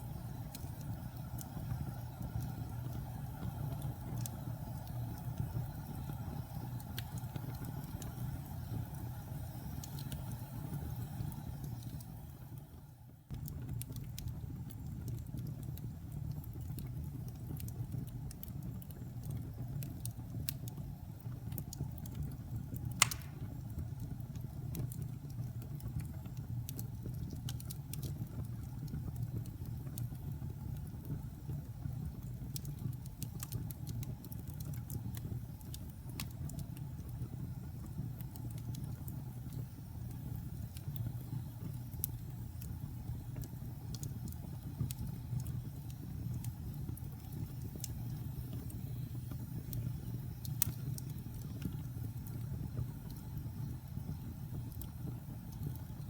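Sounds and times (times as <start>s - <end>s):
wood fire crackling: 0.0s - 56.0s
loud pop of fire: 23.0s - 23.6s.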